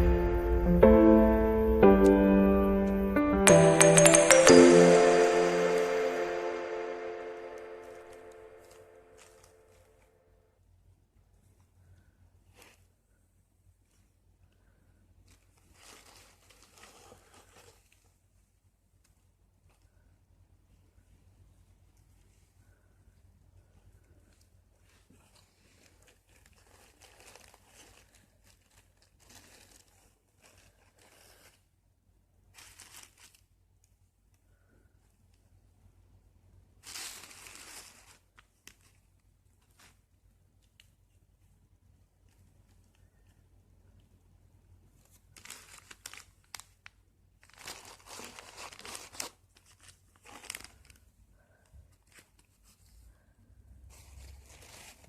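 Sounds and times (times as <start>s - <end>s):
packaging crinkling and rustling: 15.3s - 18.2s, 25.0s - 31.6s, 32.5s - 33.6s, 36.8s - 40.1s, 45.0s - 51.1s.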